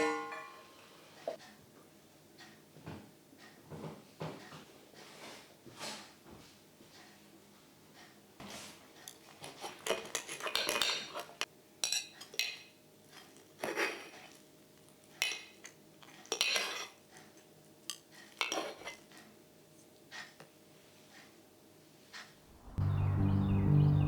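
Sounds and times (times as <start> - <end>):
hard objects clinking and scraping: 9.1 - 14.5, 15.1 - 19.1.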